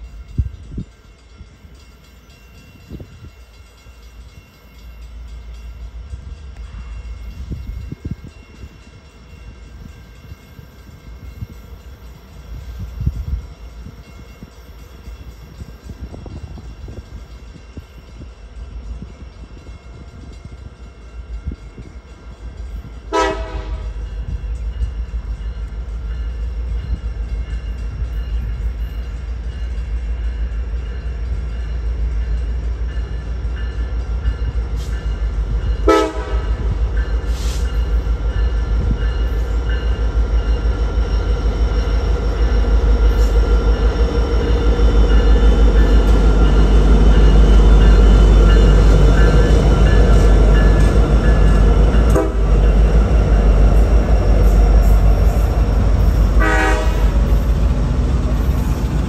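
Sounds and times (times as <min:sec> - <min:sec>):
train rumble: 0:00.0 - 0:59.0
train horn toots: 0:23.1 - 0:24.1, 0:35.8 - 0:37.8, 0:52.0 - 0:52.8, 0:56.0 - 0:57.4.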